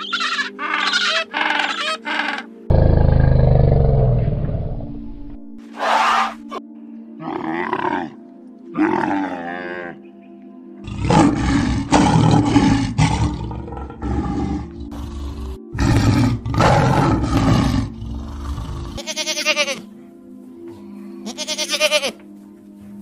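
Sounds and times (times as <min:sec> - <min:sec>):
camel calling: 0:00.0 - 0:02.6, 0:10.9 - 0:19.8, 0:21.2 - 0:22.2
background music: 0:00.0 - 0:23.0
lion roaring: 0:02.7 - 0:06.0, 0:10.8 - 0:19.0
goat bleating: 0:19.0 - 0:19.9, 0:21.2 - 0:22.2.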